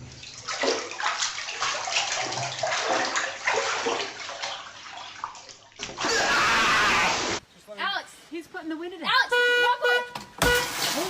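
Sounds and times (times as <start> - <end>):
water splashing and sloshing: 0.0 - 7.4, 10.2 - 11.0.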